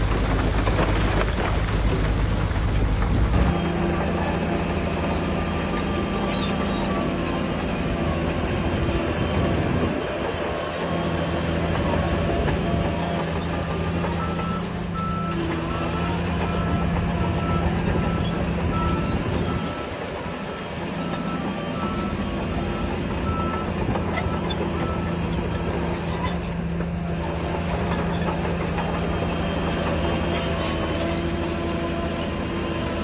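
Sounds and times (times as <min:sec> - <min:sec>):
heavy diesel machinery running: 0:00.0 - 0:33.0.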